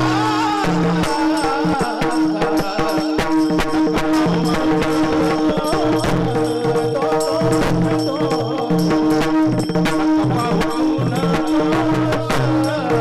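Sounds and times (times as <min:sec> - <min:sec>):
devotional music: 0:00.0 - 0:08.9
sharp percussive strikes: 0:00.0 - 0:13.0.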